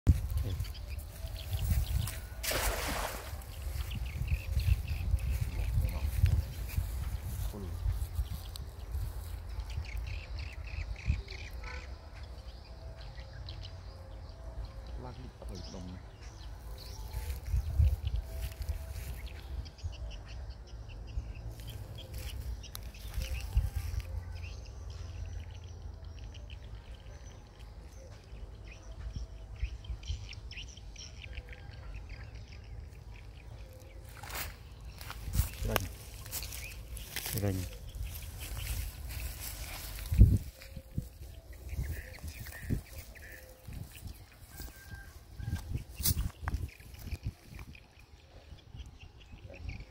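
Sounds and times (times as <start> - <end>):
wind rumble on microphone: 0.1 - 11.6, 16.8 - 24.3, 37.0 - 49.9
birds calling: 0.1 - 49.9.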